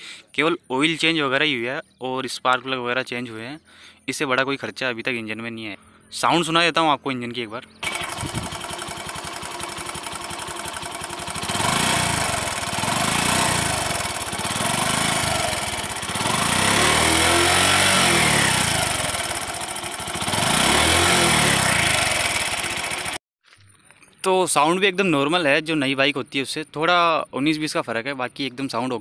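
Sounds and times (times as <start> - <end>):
motorcycle engine idling and revving: 7.7 - 23.2.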